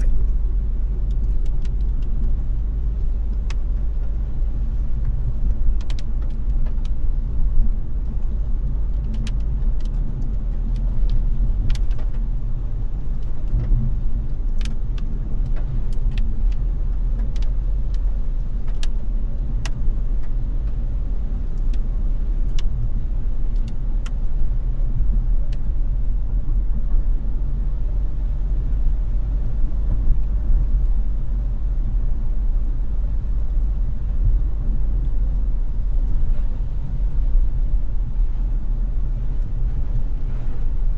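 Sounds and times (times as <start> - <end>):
raindrops ticking on car: 0.0 - 40.9
road and engine rumble: 0.0 - 40.9.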